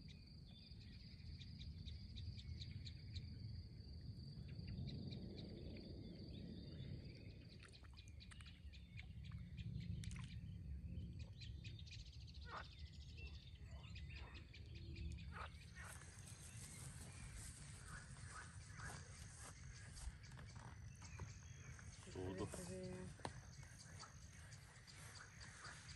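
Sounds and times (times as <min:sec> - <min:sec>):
faint insect trill: 0:00.0 - 0:07.5, 0:15.8 - 0:25.9.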